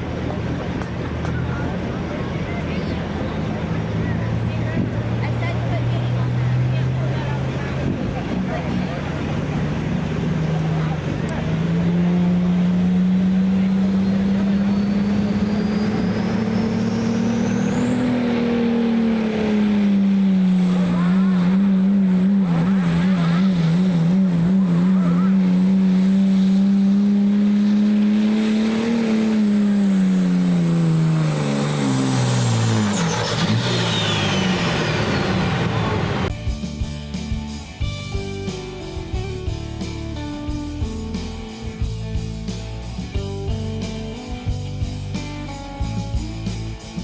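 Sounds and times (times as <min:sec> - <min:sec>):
diesel engine at full throttle: 0:00.0 - 0:36.5, 0:37.1 - 0:47.0
high turbo whistle: 0:27.3 - 0:36.3.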